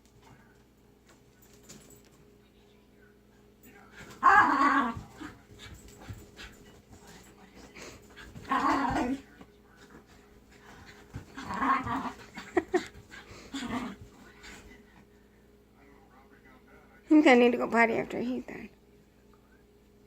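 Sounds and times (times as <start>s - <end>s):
puppy growling: 4.0s - 6.2s, 8.1s - 9.2s, 9.8s - 14.7s
puppy panting: 5.2s - 8.5s, 9.8s - 14.9s.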